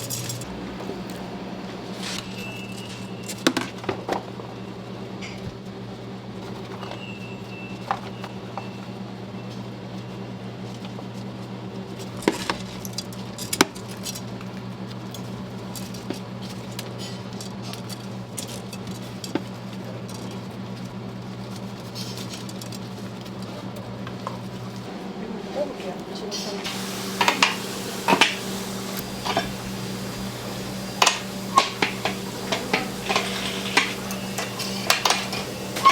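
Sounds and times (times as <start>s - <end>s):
low machine hum: 0.0s - 3.3s, 19.6s - 35.9s
dishes and utensils clinking: 26.3s - 35.9s.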